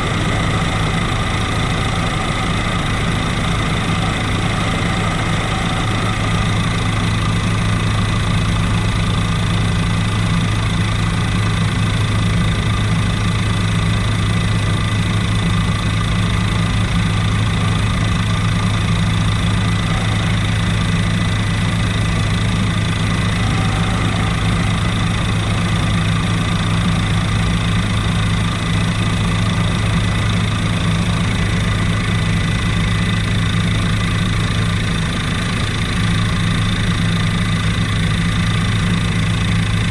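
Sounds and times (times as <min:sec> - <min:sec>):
helicopter rotor and engine drone: 0:00.0 - 0:39.9
thin high whine: 0:19.1 - 0:31.2.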